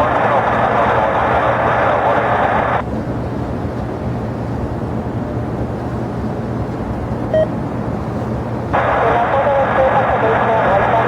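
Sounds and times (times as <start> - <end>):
air traffic control radio: 0.0 - 2.8, 8.7 - 11.0
jet aircraft engines rumbling: 0.0 - 11.0.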